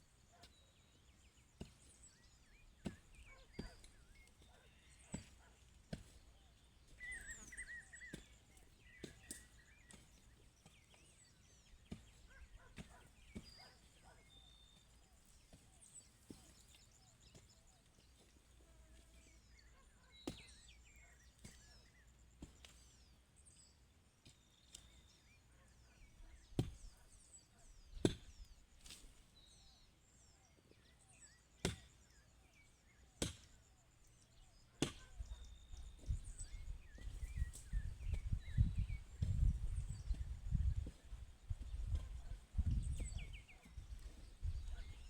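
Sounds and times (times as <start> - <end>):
hand tool chopping ground: 1.3 - 23.1, 26.4 - 27.1, 27.9 - 29.5, 31.6 - 32.6, 33.2 - 33.6, 34.6 - 45.0.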